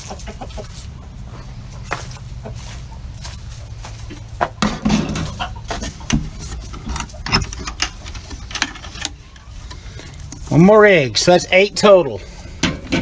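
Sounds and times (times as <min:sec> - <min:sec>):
wooden nest box rattling: 0:03.0 - 0:09.4.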